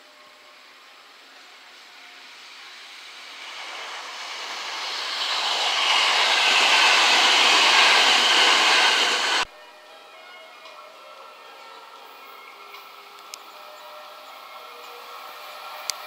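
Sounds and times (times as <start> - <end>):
electric train passing at speed: 0.0 - 9.5, 12.6 - 16.0.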